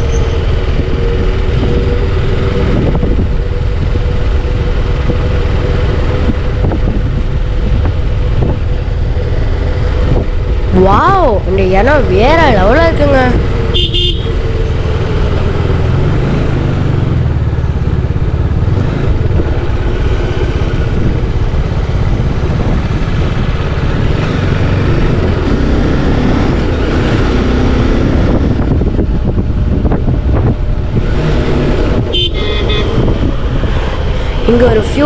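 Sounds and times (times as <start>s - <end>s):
wind on microphone: 0.0s - 13.7s, 16.1s - 35.0s
motorcycle engine running: 12.8s - 35.0s.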